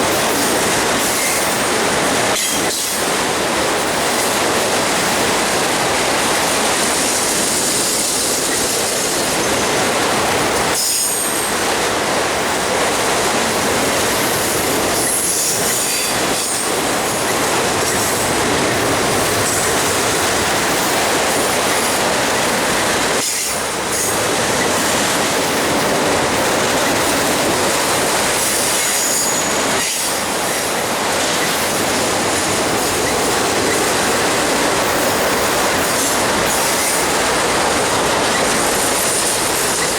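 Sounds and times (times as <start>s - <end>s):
railroad cars rolling past: 0.0s - 39.9s.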